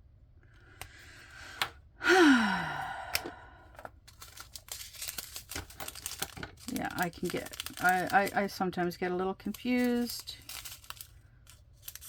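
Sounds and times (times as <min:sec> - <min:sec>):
person sighing: 0:02.0 - 0:03.8
light crinkling: 0:03.8 - 0:12.0.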